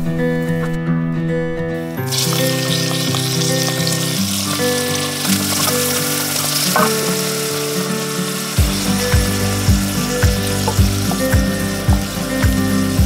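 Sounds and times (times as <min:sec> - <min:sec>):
background music: 0:00.0 - 0:13.0
bacon sizzling in a pot: 0:02.0 - 0:13.0
low thumping beat: 0:08.6 - 0:13.0.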